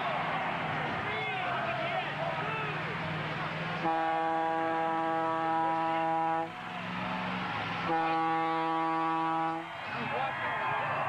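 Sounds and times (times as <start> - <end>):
long horn blasts: 3.8 - 6.5, 7.8 - 9.7.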